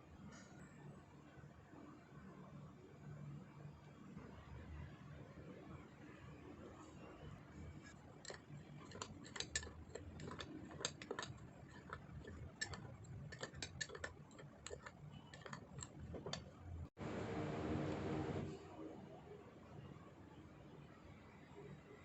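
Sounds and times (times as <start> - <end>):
spoon tapping against a mug: 8.3 - 16.5
loud steady hum: 8.3 - 18.7.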